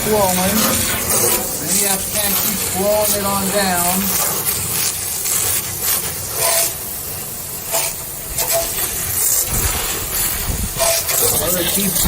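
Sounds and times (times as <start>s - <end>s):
hose spray hissing: 0.0s - 12.0s.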